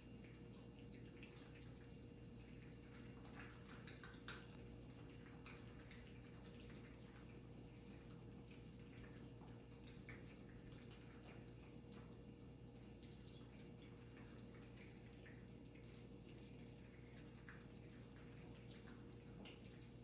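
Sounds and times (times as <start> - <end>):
cats chewing and lapping: 0.0 - 20.0.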